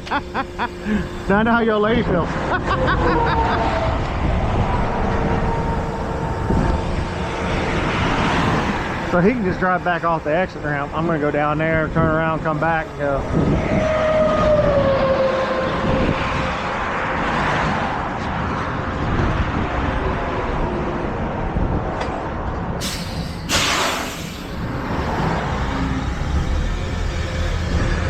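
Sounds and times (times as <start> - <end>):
heavy truck running: 0.0 - 28.0
air brake hisses: 22.8 - 24.7.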